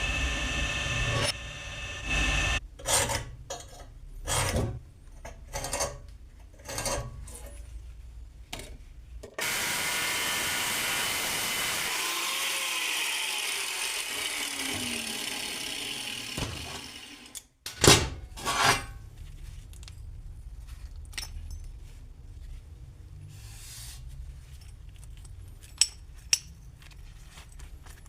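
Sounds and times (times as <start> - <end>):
power tool winding down: 0.0 - 2.6, 9.4 - 17.4.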